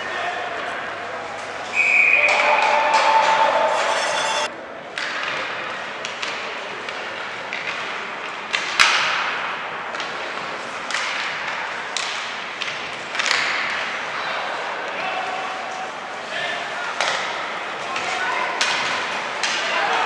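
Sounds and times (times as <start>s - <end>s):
crowd and room noise hiss: 13.7s - 20.0s.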